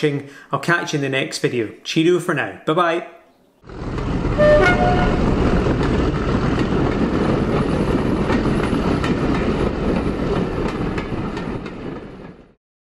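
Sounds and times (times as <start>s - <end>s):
wheels clicking over rail joints: 3.7s - 12.5s
train rumbling on track: 3.7s - 12.6s.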